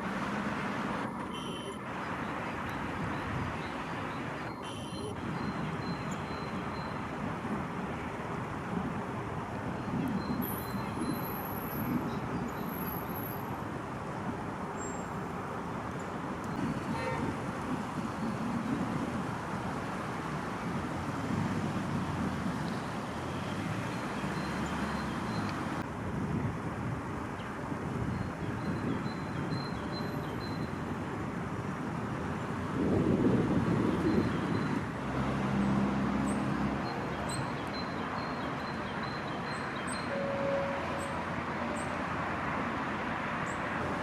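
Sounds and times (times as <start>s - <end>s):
road traffic noise: 0.0s - 44.0s.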